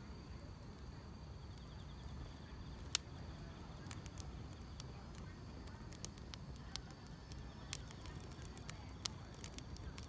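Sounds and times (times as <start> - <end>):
insects chirring: 0.0 - 10.0
firewood crackling: 0.1 - 10.0
fire snapping: 0.2 - 10.0.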